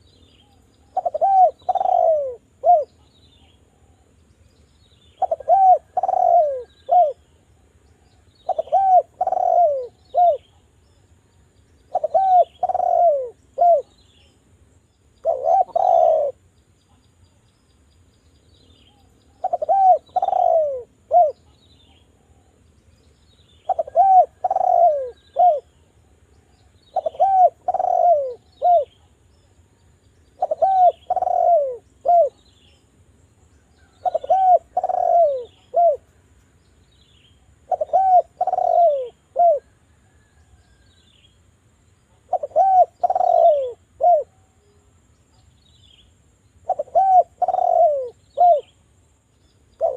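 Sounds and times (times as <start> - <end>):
collared dove cooing: 0.0 - 4.0, 5.1 - 7.3, 8.4 - 10.6, 11.9 - 14.2, 15.2 - 16.4, 18.9 - 21.6, 23.6 - 25.9, 26.8 - 29.1, 30.2 - 32.4, 33.7 - 36.1, 37.6 - 40.8, 42.1 - 44.8, 46.6 - 48.8
faint high bird chirps: 0.0 - 48.8.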